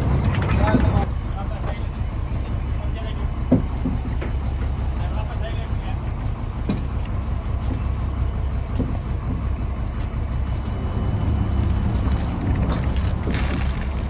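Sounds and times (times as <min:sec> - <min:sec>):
boat engine droning: 0:00.0 - 0:14.0
faint knocks: 0:03.2 - 0:04.9.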